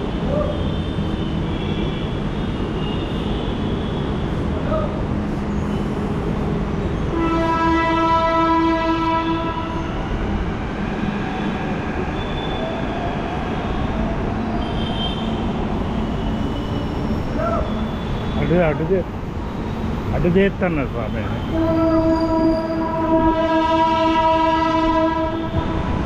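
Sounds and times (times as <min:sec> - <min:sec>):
traffic rumble: 0:00.0 - 0:26.0
long horn blast: 0:07.1 - 0:09.9, 0:21.3 - 0:25.9.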